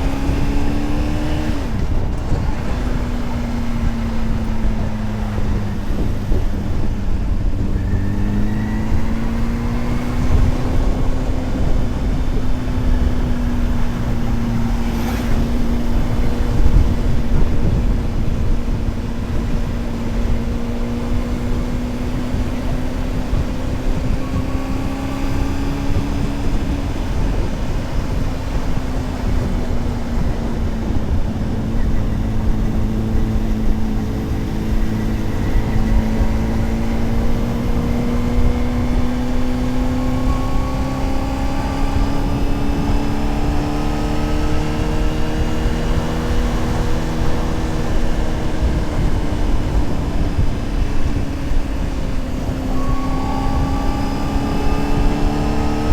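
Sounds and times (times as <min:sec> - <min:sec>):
heavy wind rush: 0:00.0 - 0:55.9
motorcycle engine cruising: 0:00.0 - 0:55.9.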